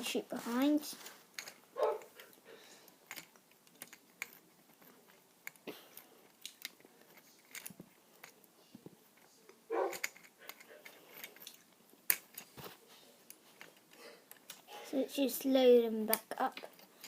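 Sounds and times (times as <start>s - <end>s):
plastic toy pieces clicking: 3.0s - 8.4s, 9.9s - 12.4s, 16.0s - 17.0s.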